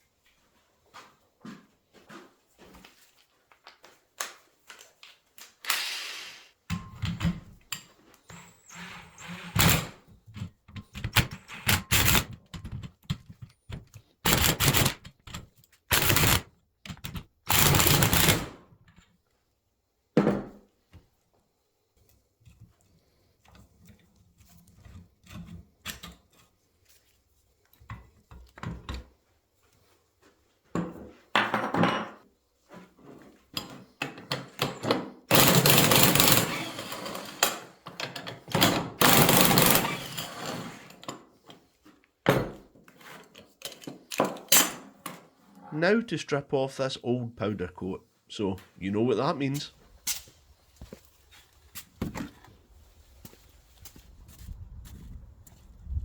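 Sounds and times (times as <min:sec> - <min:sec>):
loud rattling bursts: 0:14.3 - 0:15.0, 0:15.9 - 0:16.4, 0:17.5 - 0:18.5, 0:35.3 - 0:37.0, 0:39.0 - 0:40.1.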